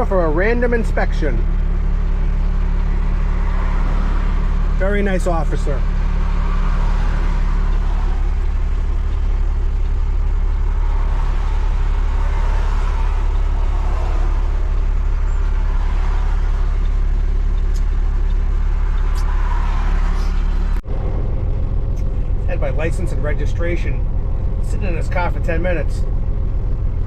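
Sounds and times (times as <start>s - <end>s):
truck diesel engine idling: 0.0s - 27.0s.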